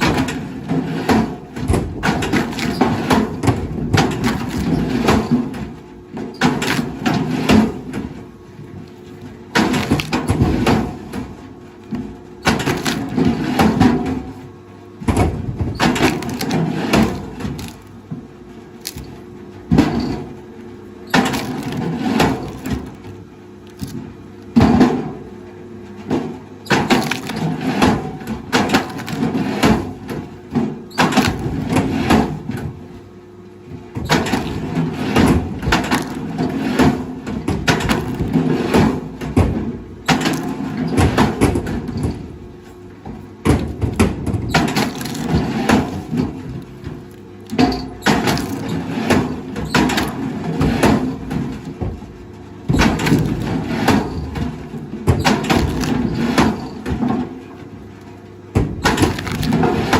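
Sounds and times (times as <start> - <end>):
low machine hum: 0.0 - 59.9
wood cracking and splintering: 1.1 - 5.5, 6.5 - 7.8, 9.2 - 11.1, 12.4 - 13.8, 15.3 - 18.2, 18.8 - 20.2, 21.1 - 24.1, 26.7 - 29.8, 34.1 - 39.1, 43.5 - 51.9, 52.7 - 56.8, 58.8 - 59.9.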